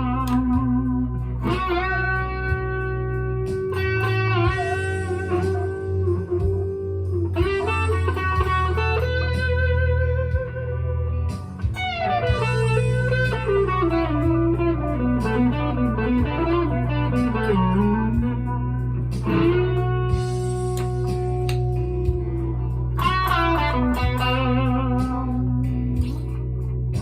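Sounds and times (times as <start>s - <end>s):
electric guitar single notes: 0.0s - 26.6s
electric guitar chords: 0.0s - 27.0s.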